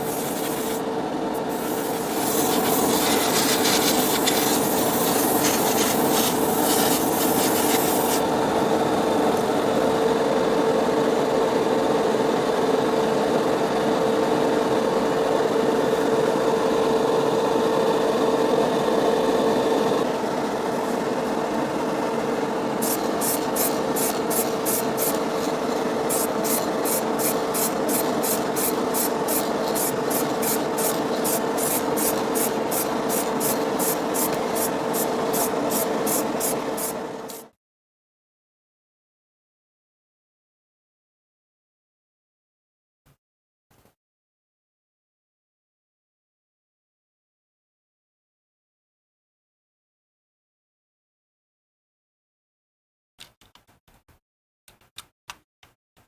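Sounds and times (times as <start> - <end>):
rubbing and rasping on surface: 0.0 - 0.8, 1.5 - 8.2, 22.8 - 37.4
small motor humming: 1.4 - 8.2, 22.8 - 37.5
quick scraping strokes: 1.5 - 8.2, 22.8 - 37.5.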